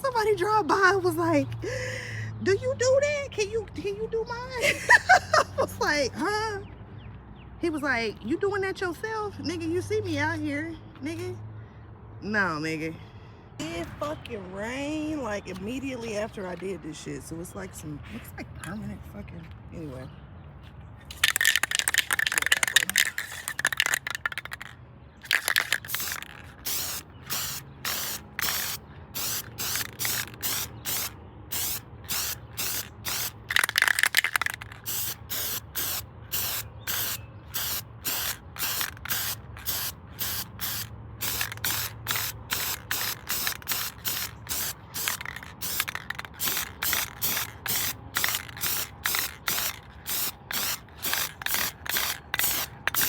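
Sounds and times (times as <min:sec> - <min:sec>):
spray paint can spraying: 0:21.1 - 0:53.0.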